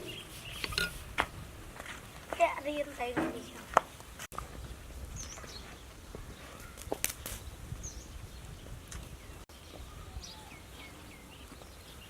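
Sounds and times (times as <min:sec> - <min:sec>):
small birds chirping: 0:00.0 - 0:00.9, 0:02.1 - 0:12.0.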